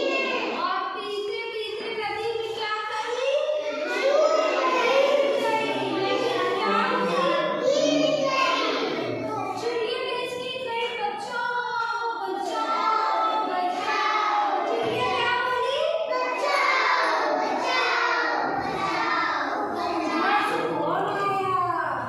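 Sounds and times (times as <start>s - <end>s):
children singing in unison: 3.7s - 9.2s, 12.4s - 15.2s, 16.1s - 20.7s.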